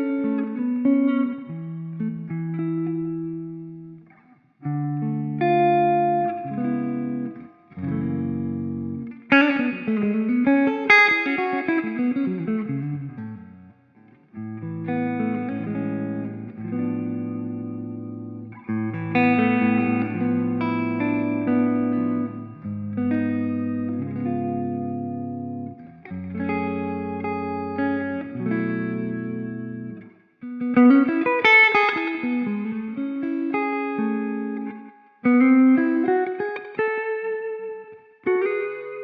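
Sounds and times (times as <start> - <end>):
distorted electric guitar: 14.6 - 36.5.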